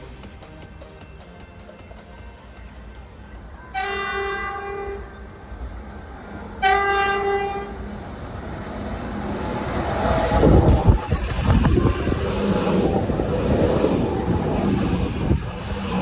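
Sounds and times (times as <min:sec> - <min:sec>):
train horn blasts: 0:03.7 - 0:05.2, 0:06.6 - 0:07.8.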